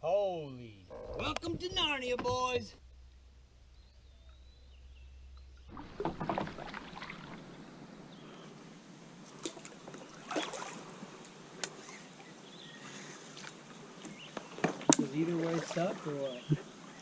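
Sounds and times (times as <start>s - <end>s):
paddle splashing in water: 5.7s - 7.7s, 9.2s - 17.0s.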